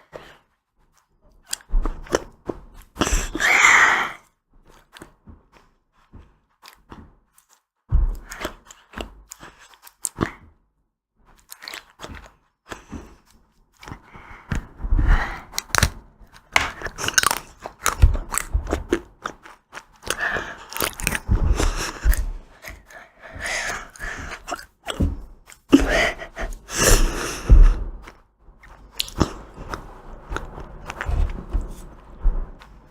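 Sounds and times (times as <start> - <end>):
wet chewing: 0.9 - 5.6, 6.5 - 10.4, 11.3 - 14.7, 15.3 - 32.9
ice cream crunchy bites: 8.3 - 10.3, 11.3 - 12.5, 15.5 - 22.9, 28.0 - 32.0.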